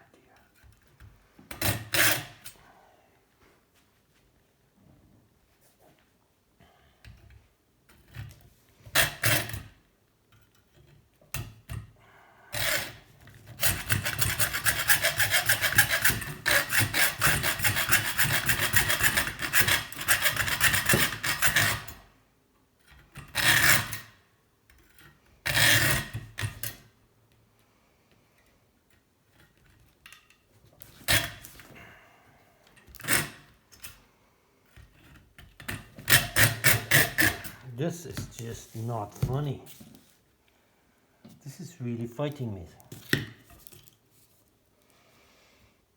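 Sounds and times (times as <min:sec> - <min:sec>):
hand tool rasping on metal tube: 0:12.5 - 0:22.0, 0:23.3 - 0:24.1, 0:25.4 - 0:26.8, 0:34.8 - 0:37.6.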